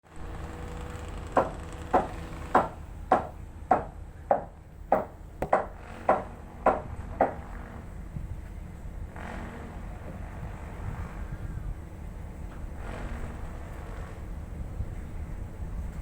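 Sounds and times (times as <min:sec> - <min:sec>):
hammer blows on wood: 0:00.8 - 0:08.3.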